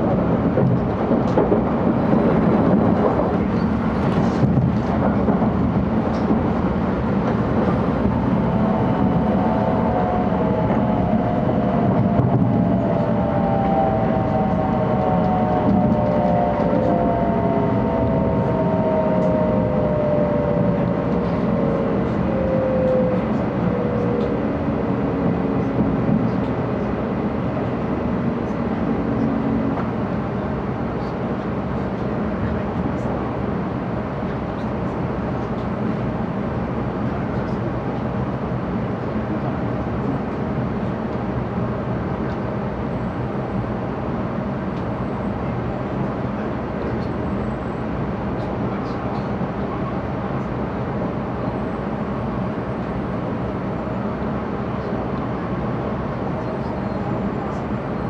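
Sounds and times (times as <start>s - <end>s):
train running rumble: 0.0s - 58.0s
falling whine: 7.4s - 27.2s.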